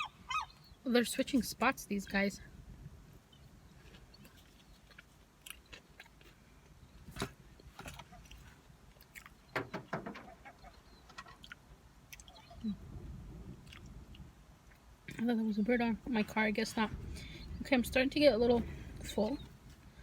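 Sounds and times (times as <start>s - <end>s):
person chewing fries: 3.7s - 9.5s, 11.3s - 12.8s, 13.6s - 14.9s.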